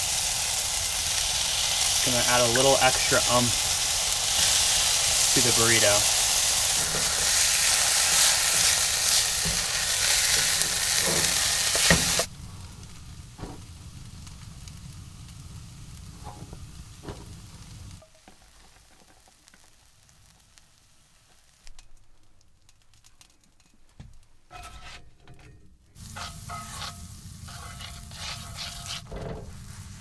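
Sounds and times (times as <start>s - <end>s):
food sizzling in a frying pan: 0.0s - 22.0s, 26.0s - 30.0s
utensil scraping a pan: 1.2s - 12.3s, 24.5s - 25.2s, 26.0s - 30.0s.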